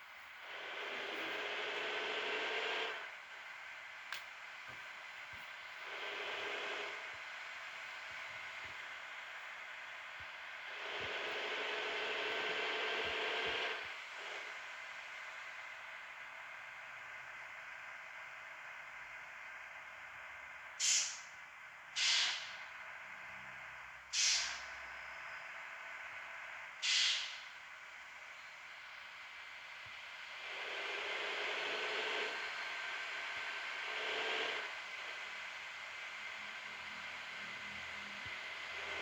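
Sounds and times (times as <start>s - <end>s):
bus engine idling: 0.0s - 39.0s
air brakes hissing: 20.8s - 21.3s, 22.0s - 22.6s, 24.1s - 24.7s, 26.8s - 27.6s.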